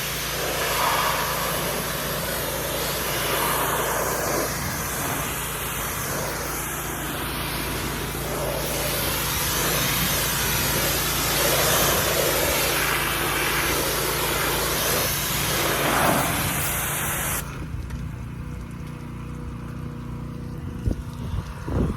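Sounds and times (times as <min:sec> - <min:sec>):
low hum: 0:00.0 - 0:10.9
water spraying: 0:00.0 - 0:21.9.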